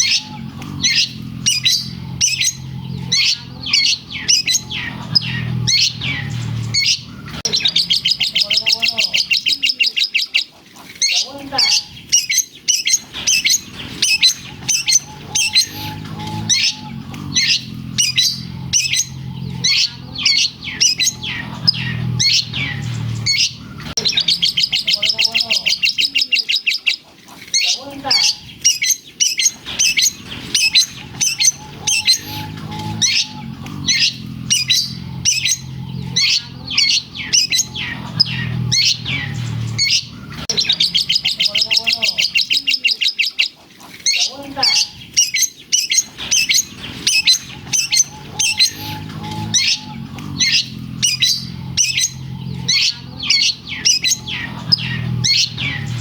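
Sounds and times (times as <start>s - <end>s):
shrike singing squeaky chips: 0.0s - 56.0s
rapid buzzing trill: 29.3s - 41.5s, 45.8s - 56.0s.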